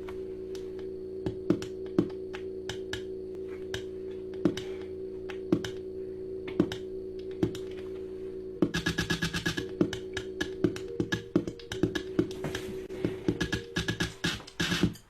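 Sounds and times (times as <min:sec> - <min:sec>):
synthesizer low drone: 0:00.0 - 0:15.0
electronic percussion clicks: 0:01.2 - 0:03.1, 0:03.7 - 0:05.8, 0:06.5 - 0:07.8, 0:08.6 - 0:15.0.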